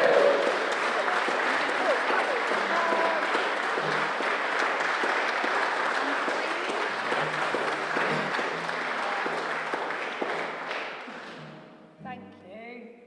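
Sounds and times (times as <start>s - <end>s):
faint low instrument notes: 0.0s - 1.7s
audience applauding: 0.0s - 11.6s.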